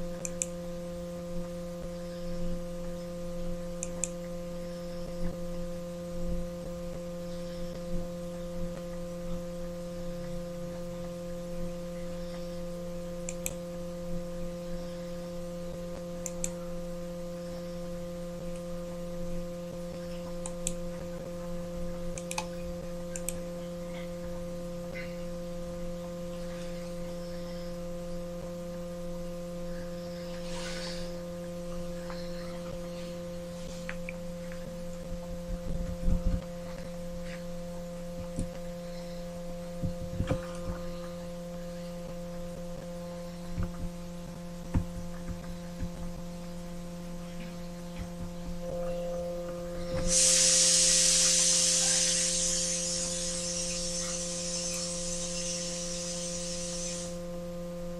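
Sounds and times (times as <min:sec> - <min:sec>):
buzzy electrical hum: 0:00.0 - 0:57.9
faint short clicks: 0:16.2 - 0:16.6, 0:22.2 - 0:23.4.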